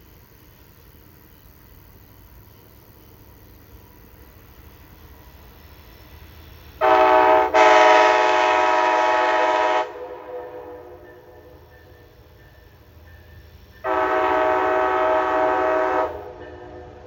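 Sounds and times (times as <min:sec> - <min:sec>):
locomotive air horn blasts: 0:06.8 - 0:11.2, 0:13.8 - 0:17.0.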